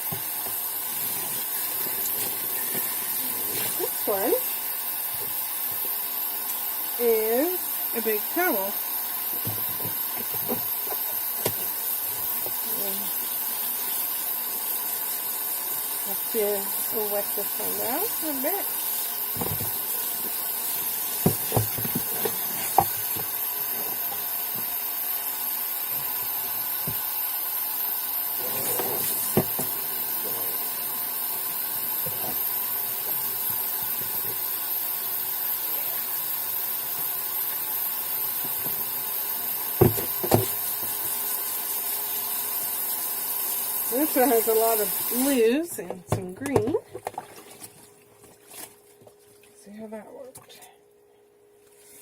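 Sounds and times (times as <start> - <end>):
running water hiss: 0.0 - 45.8.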